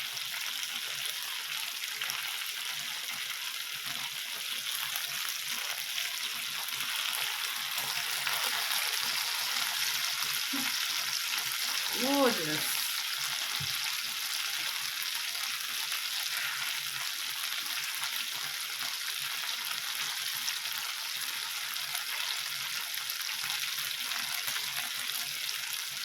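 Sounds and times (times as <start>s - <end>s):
chicken sizzling on grill: 0.0s - 26.0s.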